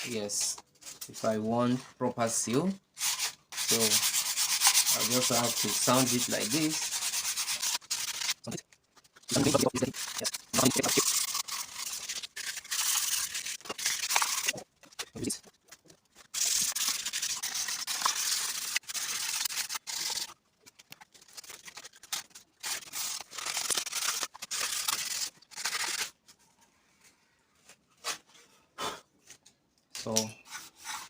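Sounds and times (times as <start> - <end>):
hand sanding plastic: 3.0 - 20.4, 30.4 - 31.0.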